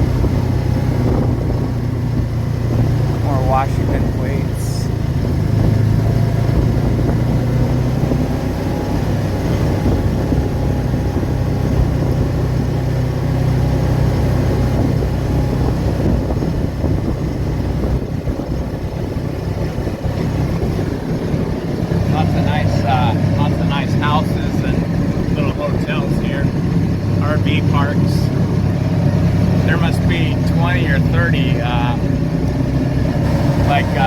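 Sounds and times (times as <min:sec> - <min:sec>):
car engine drone: 0:00.0 - 0:34.0
road noise: 0:00.0 - 0:34.0.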